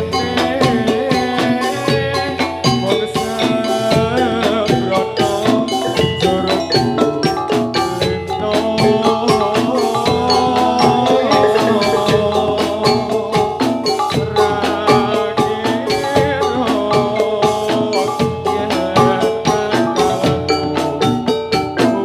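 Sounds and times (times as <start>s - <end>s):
drums: 0.0s - 22.0s
gamelan metallophones: 0.0s - 22.0s.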